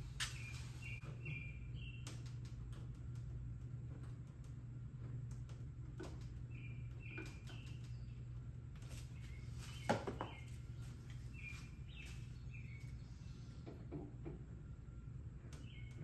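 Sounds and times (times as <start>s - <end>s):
low steady hum: 0.0s - 16.0s
small birds chirping: 0.1s - 2.6s, 6.0s - 14.3s, 15.3s - 16.0s.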